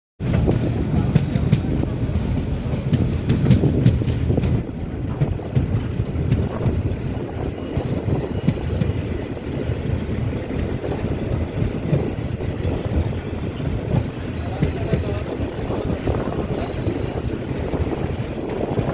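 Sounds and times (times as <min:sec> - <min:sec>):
train rumbling on track: 0:00.2 - 0:18.9
wind buffeting microphone: 0:00.2 - 0:18.9.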